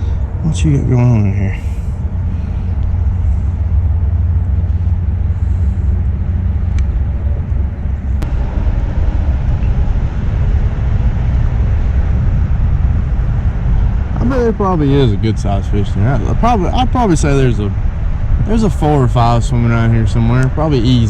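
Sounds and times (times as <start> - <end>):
motor low hum: 0.0 - 21.0.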